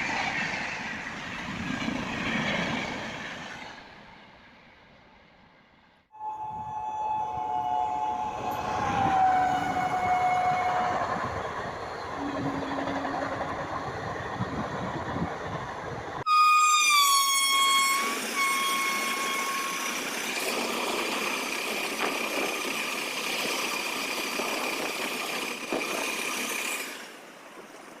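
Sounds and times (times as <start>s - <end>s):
train horn: 6.1s - 11.4s, 12.2s - 13.8s, 16.3s - 19.9s
train rushing past: 6.2s - 28.0s.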